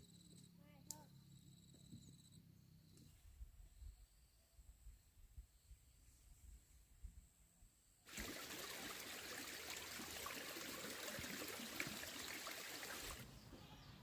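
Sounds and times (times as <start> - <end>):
stream water rushing: 8.1 - 13.2.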